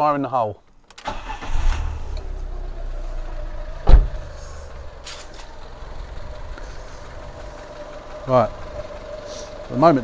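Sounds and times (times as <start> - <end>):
car engine settling to idle: 0.7 - 10.0
loud thump: 3.8 - 4.4.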